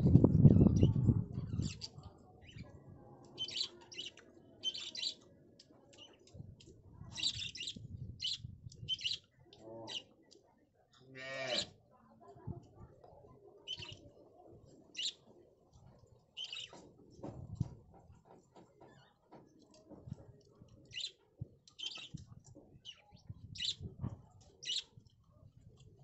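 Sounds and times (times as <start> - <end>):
birds chirping: 0.4 - 5.3, 7.2 - 10.2, 16.4 - 16.8, 20.8 - 23.9.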